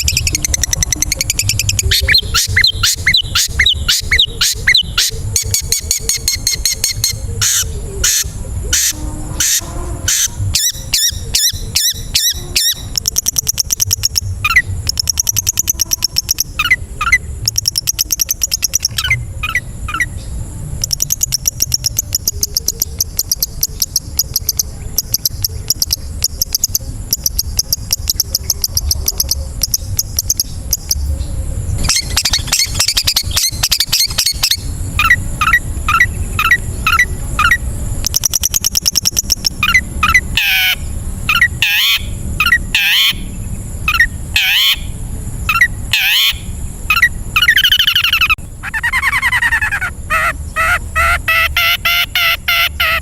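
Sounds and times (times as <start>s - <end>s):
bird chattering and clicking: 0.0s - 9.0s, 10.2s - 20.1s, 20.8s - 31.0s, 31.8s - 43.2s
bird whistled notes: 0.0s - 31.1s, 31.8s - 43.3s, 45.5s - 53.0s.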